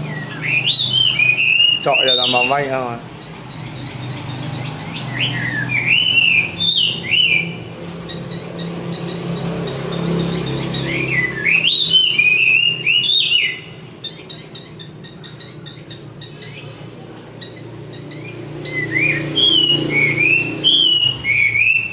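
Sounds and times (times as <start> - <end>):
birds singing whistled phrases: 0.0 - 21.9
soft bird chirps and clicks: 14.0 - 18.9.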